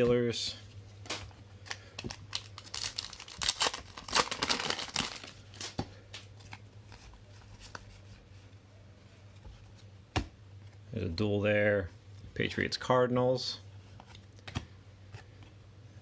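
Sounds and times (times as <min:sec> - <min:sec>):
low electrical hum: 0:00.0 - 0:16.0
wrapper tearing and crinkling: 0:02.1 - 0:05.8.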